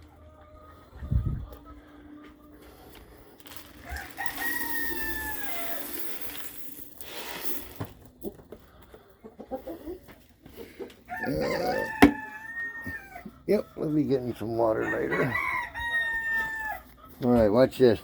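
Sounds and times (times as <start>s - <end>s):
chickens clucking: 0.0s - 5.5s, 8.2s - 18.0s
rooster crowing: 3.8s - 6.0s, 11.1s - 13.3s, 14.8s - 16.9s.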